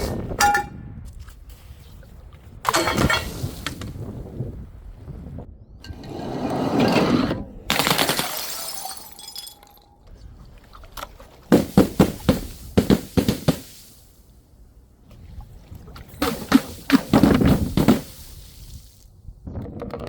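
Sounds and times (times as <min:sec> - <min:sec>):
glass pieces ringing: 0:07.7 - 0:10.0
glass smashing: 0:07.7 - 0:10.0.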